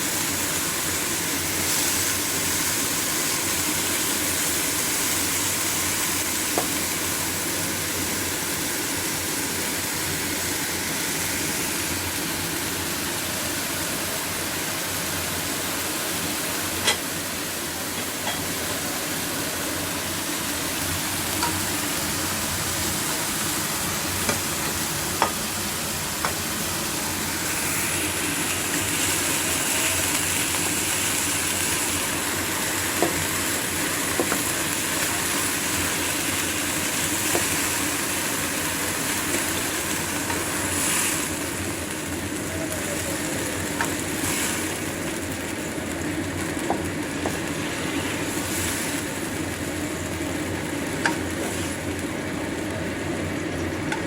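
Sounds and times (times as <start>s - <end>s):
food sizzling in a wok: 0.0s - 54.0s.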